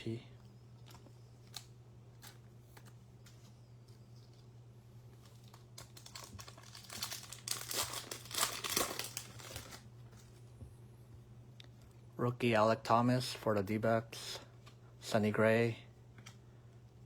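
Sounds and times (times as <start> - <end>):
low steady hum: 0.0 - 17.0
foil wrapper tearing and crinkling: 5.2 - 9.9.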